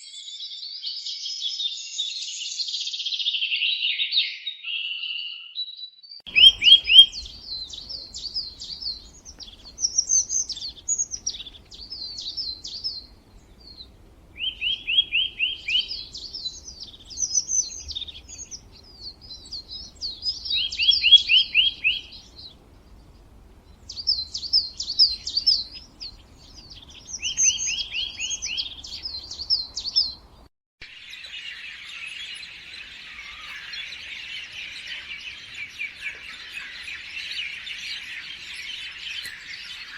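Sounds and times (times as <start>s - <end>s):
songbird singing: 3.7s - 39.9s
steady high hiss: 6.3s - 29.0s.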